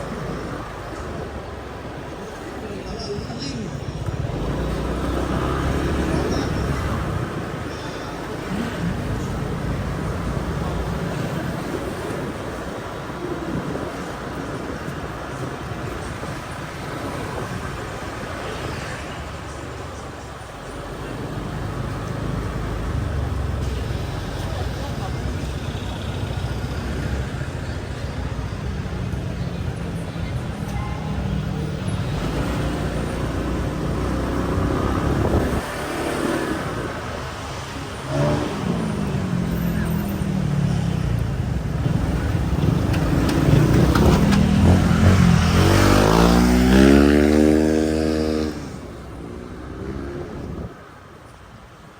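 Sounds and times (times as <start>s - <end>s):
motorbike engine and road noise: 0.0s - 51.9s.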